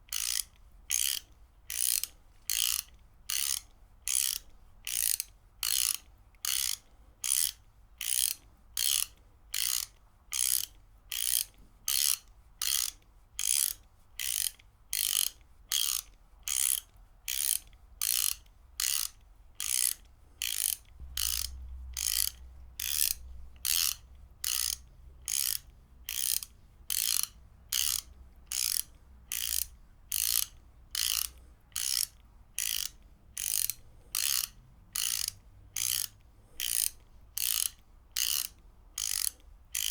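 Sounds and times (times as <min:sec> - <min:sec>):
ratchet wrench clicking: 0:00.1 - 0:39.9.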